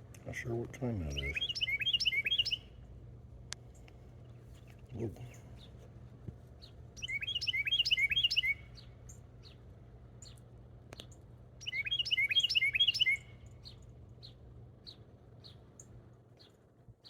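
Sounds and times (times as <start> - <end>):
songbird song bursts: 0.9 - 2.8, 6.6 - 17.0.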